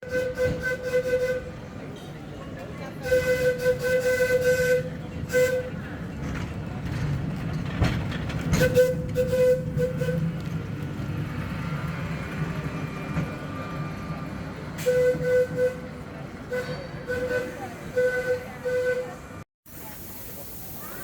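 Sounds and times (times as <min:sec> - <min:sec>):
tram horn toots: 0:00.0 - 0:02.1, 0:02.9 - 0:06.1, 0:08.5 - 0:10.6, 0:14.7 - 0:19.4
wheels clicking on rails: 0:00.0 - 0:19.2
tram rumbling along street: 0:00.0 - 0:21.0.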